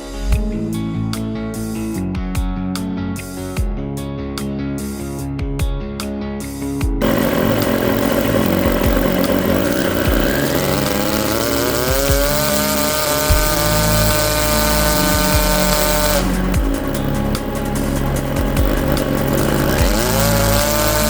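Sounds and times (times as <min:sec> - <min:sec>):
rotary engine revving with whine: 0:07.0 - 0:21.0.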